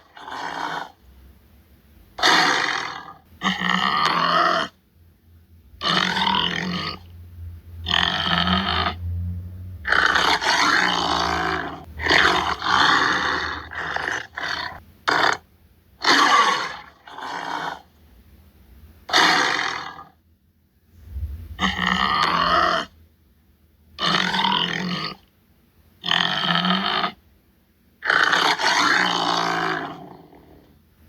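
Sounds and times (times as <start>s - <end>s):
tiger roaring and grunting: 0.0s - 1.0s, 2.2s - 4.8s, 5.8s - 7.1s, 7.8s - 9.1s, 9.8s - 15.4s, 16.0s - 17.9s, 19.1s - 20.2s, 21.5s - 23.0s, 24.0s - 25.2s, 26.0s - 27.2s, 28.0s - 30.7s.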